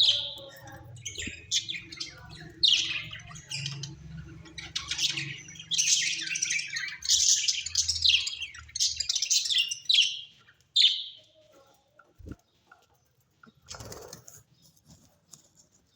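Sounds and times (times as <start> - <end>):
parrots chirping and chattering: 0.0 - 15.9.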